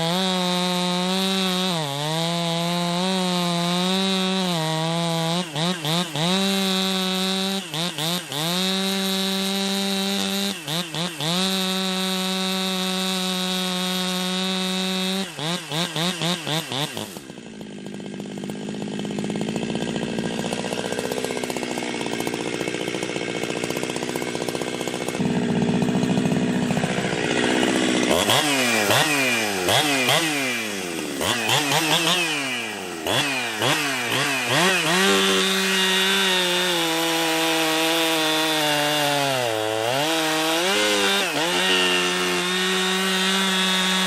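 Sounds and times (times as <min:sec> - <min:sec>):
chainsaw cutting into wood: 0:00.0 - 0:44.0
chainsaw revving: 0:00.0 - 0:44.0.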